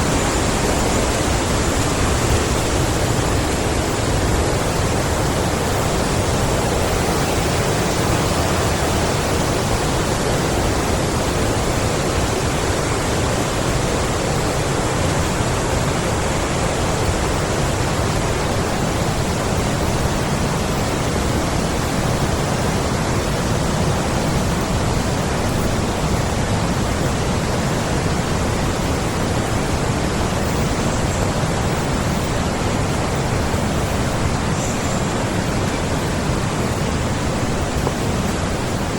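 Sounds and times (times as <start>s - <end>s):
stream rushing: 0.0s - 38.9s.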